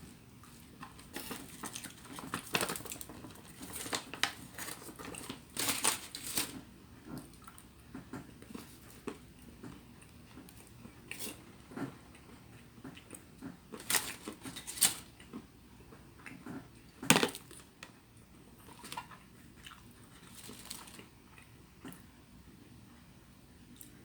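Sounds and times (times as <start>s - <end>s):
chewing: 7.1s - 14.6s, 18.6s - 22.1s.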